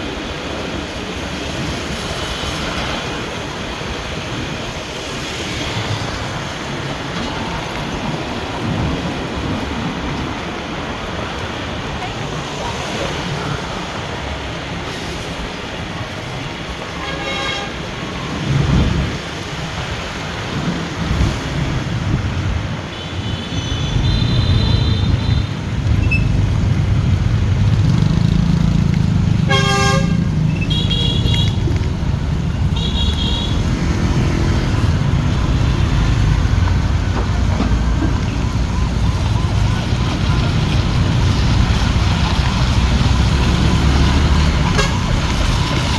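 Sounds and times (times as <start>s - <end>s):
highway traffic: 0.0s - 45.9s
vehicle horns honking: 16.9s - 17.9s, 23.0s - 26.4s, 29.5s - 31.7s, 32.6s - 33.8s, 44.4s - 45.3s.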